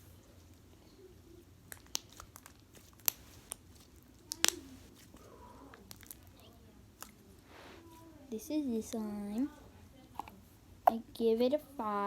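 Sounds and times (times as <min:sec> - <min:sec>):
slime popping and clicking: 0:04.3 - 0:04.7.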